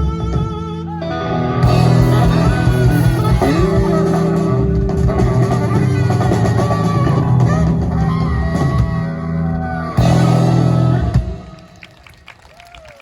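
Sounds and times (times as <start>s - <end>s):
live rock band playing: 0.0s - 12.2s.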